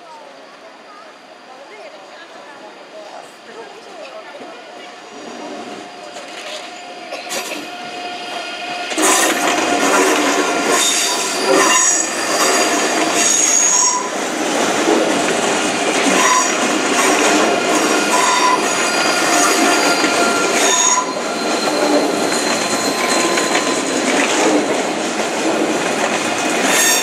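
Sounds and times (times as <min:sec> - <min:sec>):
electric train running past: 0:00.0 - 0:27.0
high wheel squealing: 0:05.0 - 0:14.8, 0:15.4 - 0:27.0.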